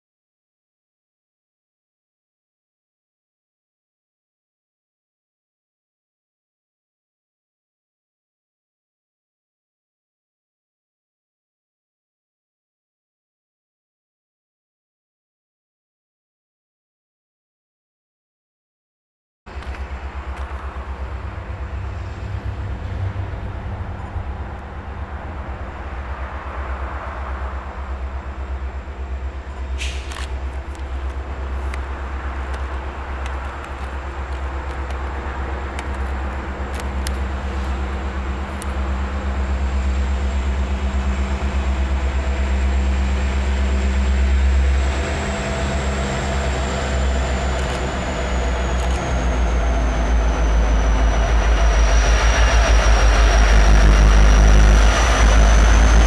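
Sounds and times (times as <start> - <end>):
diesel locomotive rumble: 19.5 - 56.0.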